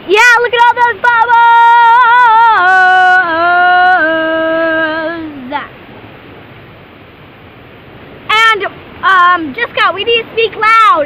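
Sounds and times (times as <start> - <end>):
girl singing long note: 0.0 - 5.7
water rushing: 0.0 - 11.0.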